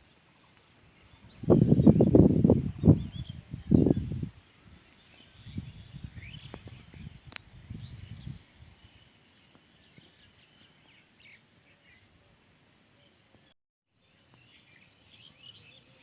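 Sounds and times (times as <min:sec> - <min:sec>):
small birds chirping: 0:00.0 - 0:16.0
low rumbling on microphone: 0:01.1 - 0:04.4.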